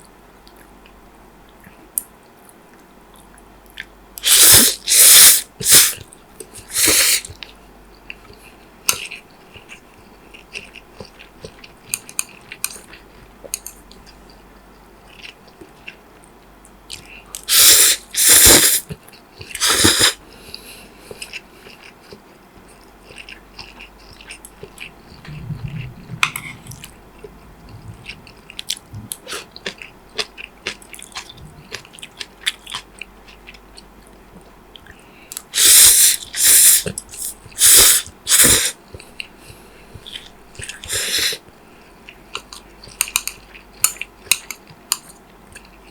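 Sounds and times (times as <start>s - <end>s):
chewing and mouth clicks: 5.9s - 17.6s, 20.5s - 37.7s, 42.0s - 45.9s.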